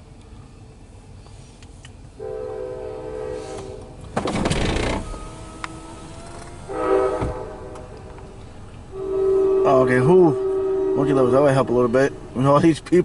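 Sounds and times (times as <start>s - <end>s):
train horn blasts: 2.2s - 4.0s, 5.3s - 8.1s, 8.9s - 12.4s.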